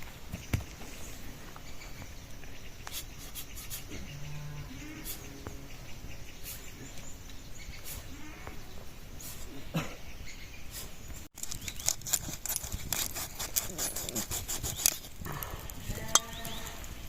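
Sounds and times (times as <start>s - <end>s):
livestock calling: 3.4s - 7.0s, 15.2s - 17.0s.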